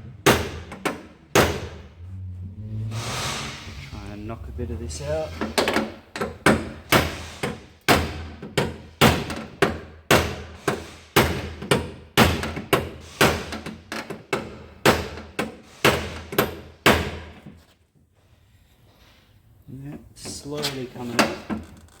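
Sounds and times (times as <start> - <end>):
hammer striking car body metal: 0.2 - 1.8, 6.4 - 13.6, 14.4 - 17.3.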